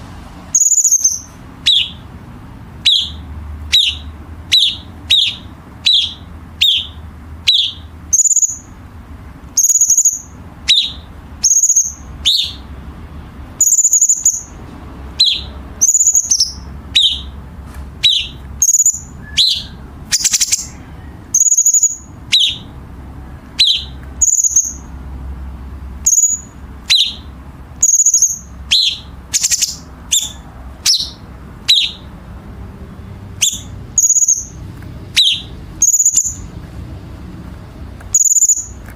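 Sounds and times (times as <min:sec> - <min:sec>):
bird rattling trills: 0:00.6 - 0:02.0, 0:02.8 - 0:08.7, 0:09.6 - 0:12.7, 0:13.6 - 0:22.7, 0:23.6 - 0:24.9, 0:26.0 - 0:32.0, 0:33.4 - 0:36.5, 0:38.1 - 0:38.8
bird harsh calls: 0:00.6 - 0:08.8, 0:09.5 - 0:12.7, 0:13.6 - 0:25.0, 0:26.0 - 0:32.2, 0:33.3 - 0:36.6, 0:38.1 - 0:38.8.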